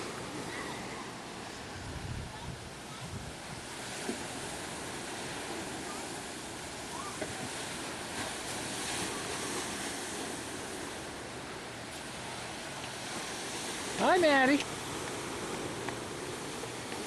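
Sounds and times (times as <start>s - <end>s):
ocean surf washing on shore: 0.0s - 17.0s.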